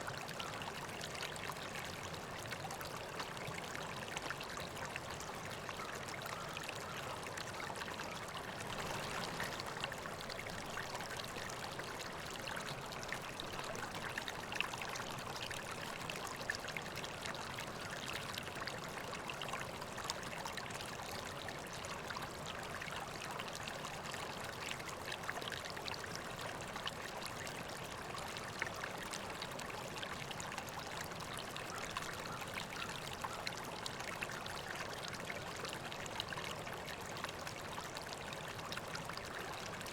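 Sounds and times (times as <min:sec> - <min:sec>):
small water splashes: 0:00.0 - 0:20.3
river water flowing: 0:00.0 - 0:39.9.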